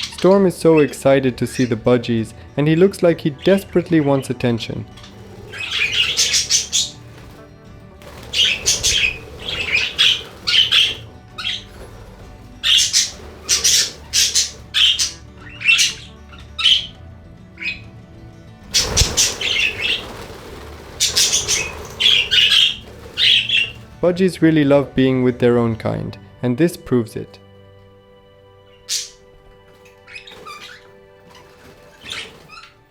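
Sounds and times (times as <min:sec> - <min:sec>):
budgerigars squawking and chattering: 0:00.0 - 0:01.9, 0:02.7 - 0:17.0, 0:17.6 - 0:18.0, 0:18.6 - 0:24.0, 0:28.8 - 0:32.9
rustling burst: 0:05.1 - 0:15.2, 0:18.6 - 0:24.0.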